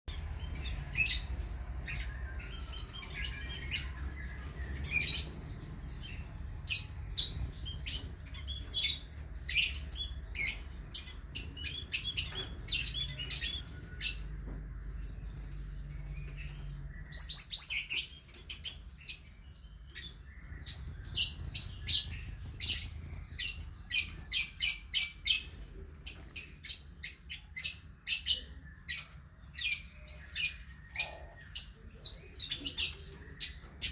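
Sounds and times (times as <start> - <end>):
small songbirds chirping: 0.1 - 33.9.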